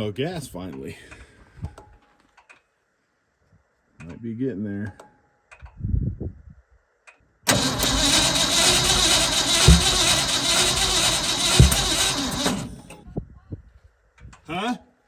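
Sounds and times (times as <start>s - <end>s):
backfiring thumps: 7.5s - 13.0s
engine cranking without starting: 7.5s - 13.0s.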